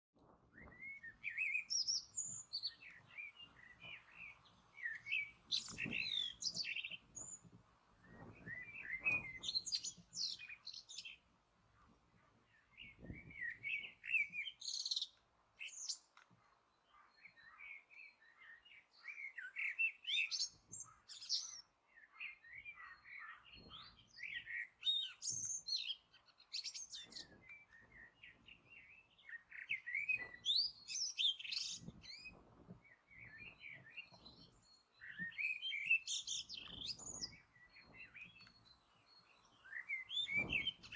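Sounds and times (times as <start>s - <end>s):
songbird singing: 0.5s - 40.9s.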